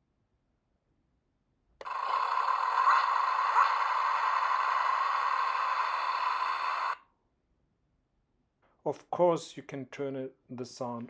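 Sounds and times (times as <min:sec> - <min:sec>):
toy electronic engine sound: 0:01.8 - 0:07.0.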